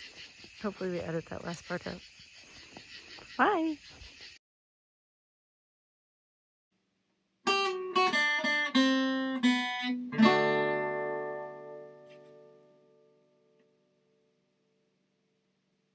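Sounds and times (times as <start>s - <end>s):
acoustic guitar plucked notes: 7.4s - 13.8s.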